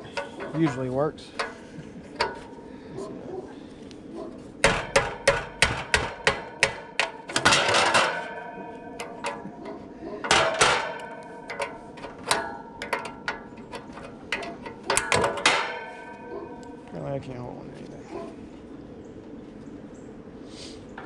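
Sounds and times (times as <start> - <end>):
metal tools clanking on metal: 0.0 - 2.6, 4.6 - 17.4.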